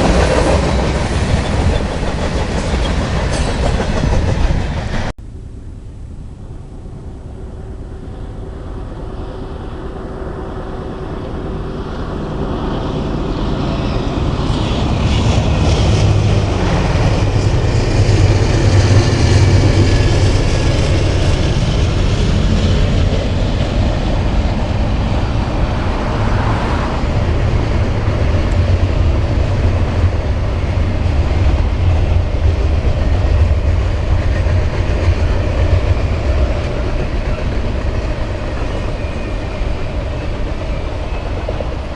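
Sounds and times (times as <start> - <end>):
train wheel noise: 0.0 - 5.2, 6.9 - 41.9
diesel train passing: 0.0 - 41.9.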